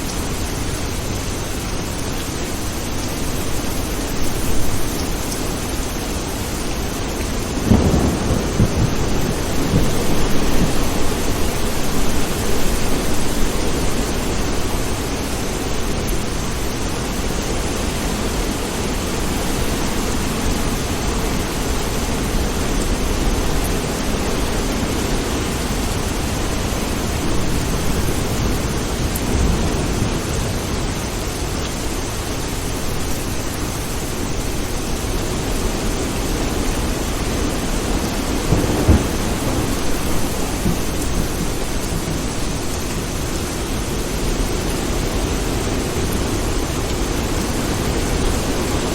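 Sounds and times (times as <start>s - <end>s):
heavy rain: 0.0s - 48.9s
thunder rumbling: 6.9s - 15.1s, 25.5s - 31.2s, 36.2s - 45.4s.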